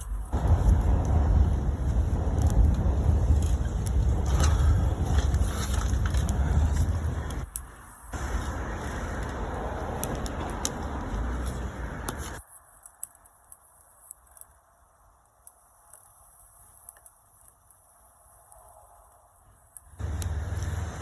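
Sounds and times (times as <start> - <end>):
steady low rumble: 0.0 - 12.4, 18.2 - 21.0
wood bonfire crackling: 0.0 - 21.0.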